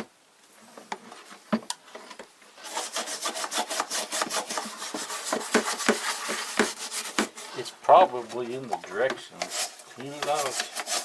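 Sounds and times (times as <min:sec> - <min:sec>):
rapid scraping of mineral scale: 0:02.6 - 0:11.0.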